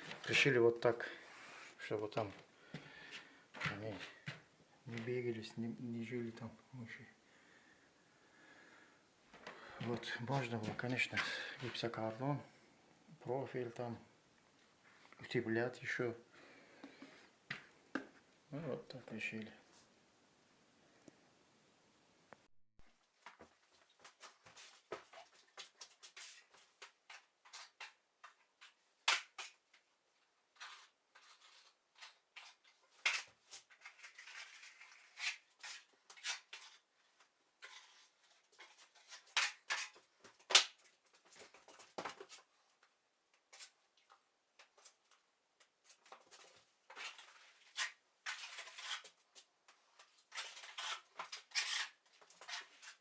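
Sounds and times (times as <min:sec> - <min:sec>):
hand tools scraping and clicking: 0:45.9 - 0:53.0.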